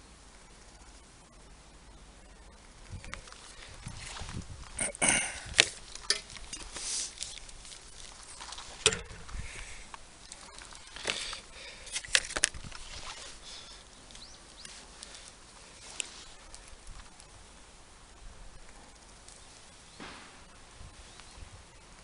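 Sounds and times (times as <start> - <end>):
scraping and rustling: 3.0 - 17.2.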